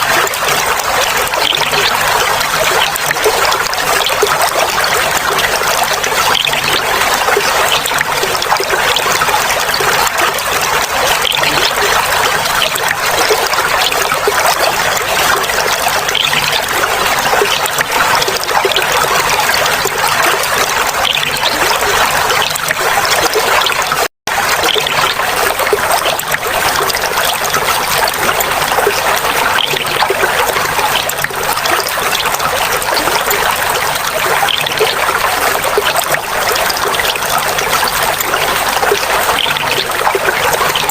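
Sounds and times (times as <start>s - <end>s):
water trickling and babbling: 0.0s - 40.9s.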